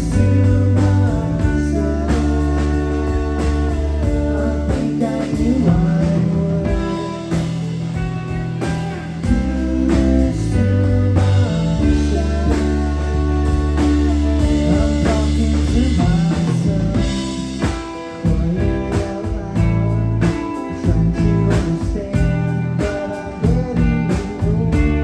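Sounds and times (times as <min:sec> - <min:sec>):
drum kit strokes: 0:00.0 - 0:25.0
rock band playing: 0:00.0 - 0:25.0.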